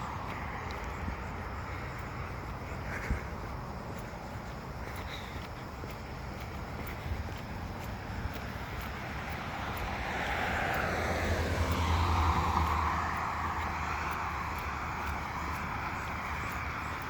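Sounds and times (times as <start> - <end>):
vehicle passing by: 0.0 - 17.0.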